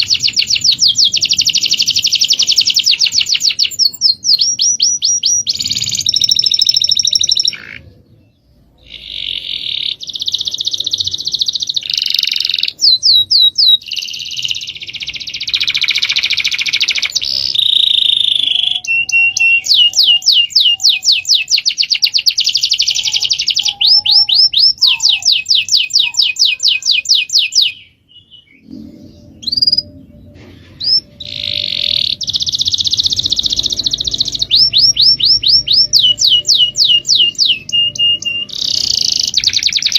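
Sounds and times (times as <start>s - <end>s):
songbirds singing trills: 0.0s - 39.9s.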